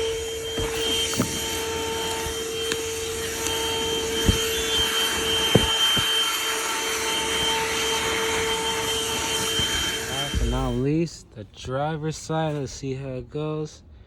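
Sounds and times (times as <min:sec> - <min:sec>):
car vacuum whining: 0:00.0 - 0:12.7
sharp knocks: 0:05.4 - 0:06.3.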